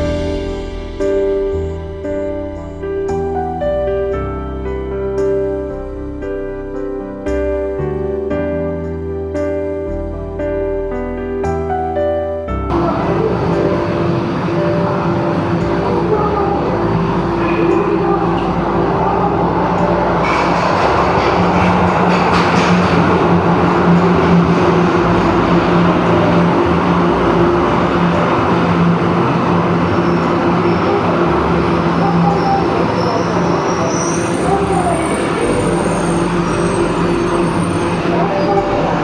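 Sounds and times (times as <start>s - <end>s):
high squeal of train wheels: 0.0s - 3.5s, 12.7s - 39.0s
electric train rumbling: 0.0s - 9.0s, 12.7s - 39.0s.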